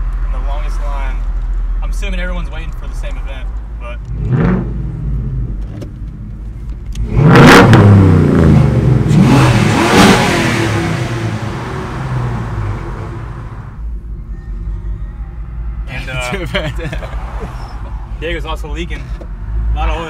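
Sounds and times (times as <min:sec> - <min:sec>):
car engine revving: 0:04.0 - 0:20.0.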